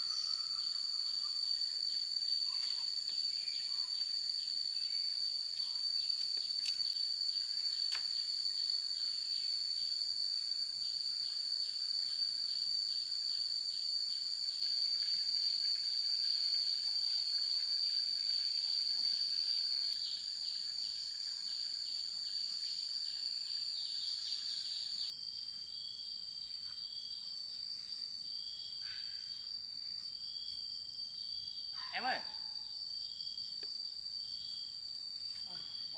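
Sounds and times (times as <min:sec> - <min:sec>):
low insect buzzing call: 0:00.0 - 0:25.1
insects droning: 0:00.0 - 0:35.9.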